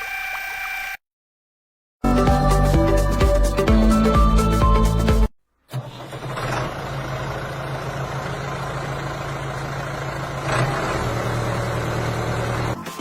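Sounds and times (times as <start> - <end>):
motor running with whirr: 0.0 - 1.0.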